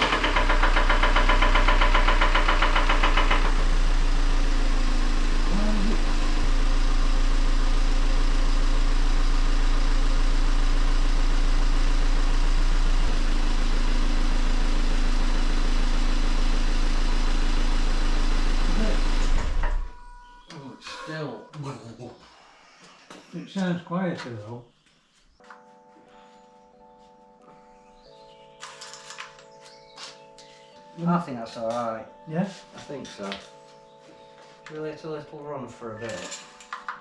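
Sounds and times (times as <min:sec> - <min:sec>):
car engine idling with rattly clatter: 0:00.0 - 0:20.0.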